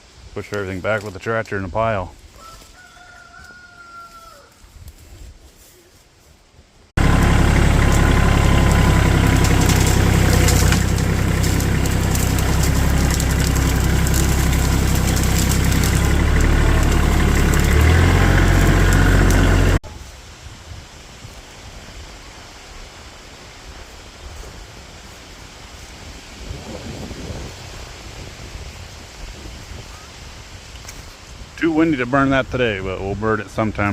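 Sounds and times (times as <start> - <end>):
tractor diesel engine running: 7.0 - 19.8
wind noise on microphone: 19.8 - 23.0, 23.6 - 33.9.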